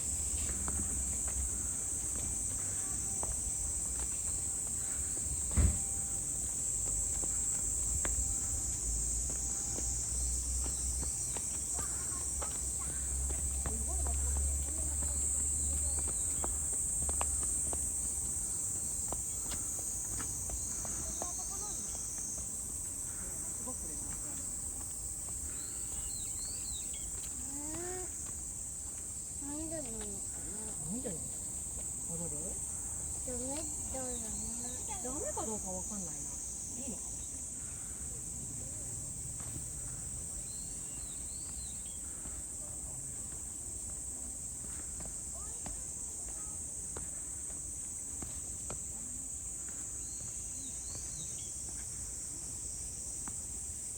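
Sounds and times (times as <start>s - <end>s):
high-pitched insect chorus: 0.0s - 53.9s
faint bird chirps: 25.5s - 28.0s.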